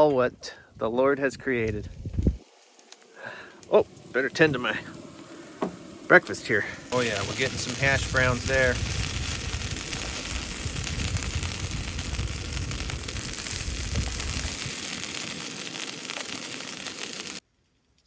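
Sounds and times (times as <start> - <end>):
hash browns sizzling in a pan: 2.4 - 17.4
low rumble: 3.8 - 14.9.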